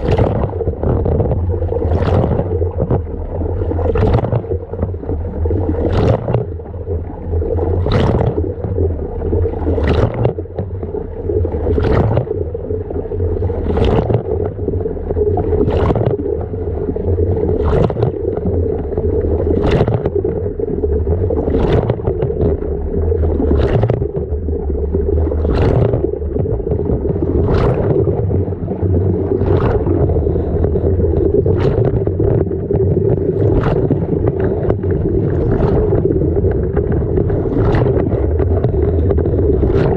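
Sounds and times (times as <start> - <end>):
water and laundry sloshing: 0.0 - 39.9.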